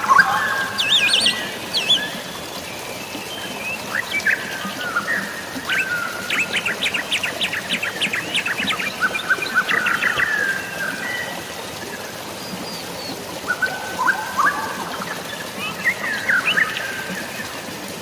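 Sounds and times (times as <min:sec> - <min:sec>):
light rain: 0:00.0 - 0:18.0.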